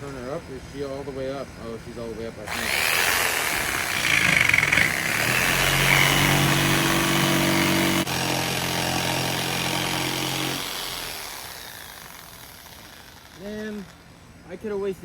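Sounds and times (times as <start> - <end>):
circular saw cutting plywood: 2.5 - 14.1.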